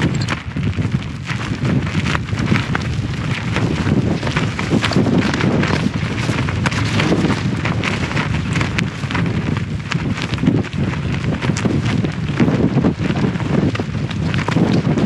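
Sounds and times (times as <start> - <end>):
tent fabric flapping: 0.0 - 15.0
wind buffeting microphone: 0.0 - 15.0.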